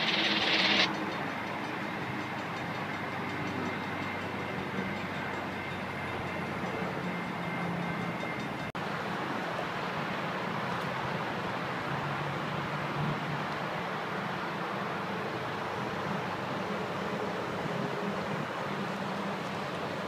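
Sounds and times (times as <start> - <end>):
faint high whine: 0.0 - 1.8
distant diesel train rumble: 0.0 - 10.4.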